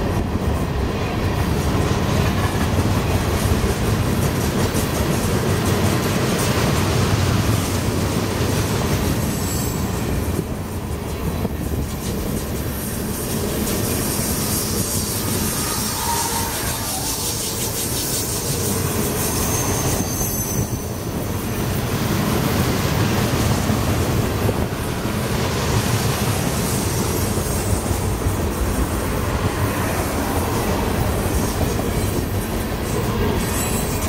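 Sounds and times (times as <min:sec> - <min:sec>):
train wheels clattering on rails: 0:00.0 - 0:34.0
wheel squeal: 0:09.2 - 0:10.1, 0:13.8 - 0:21.2, 0:33.4 - 0:34.0.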